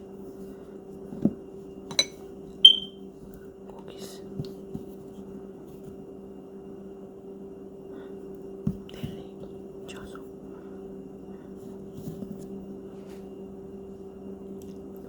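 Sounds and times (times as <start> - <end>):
bright ringing clink: 1.9 - 2.9
hard objects knocking: 1.9 - 2.9.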